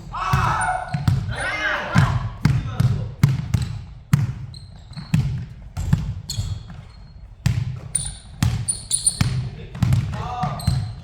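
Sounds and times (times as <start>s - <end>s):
basketball bouncing on court: 0.2s - 11.0s
shoe squeaks: 4.4s - 9.6s, 10.5s - 11.0s.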